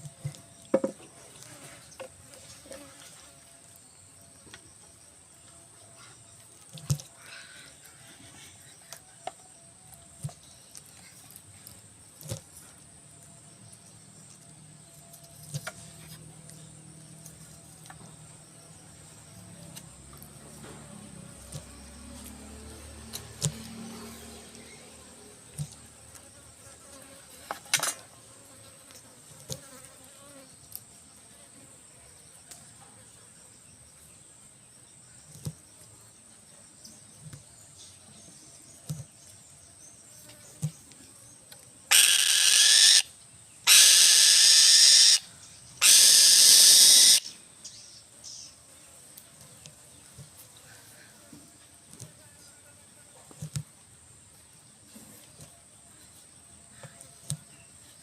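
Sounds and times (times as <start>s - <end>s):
falcon screeching: 41.9s - 43.1s, 43.7s - 47.3s.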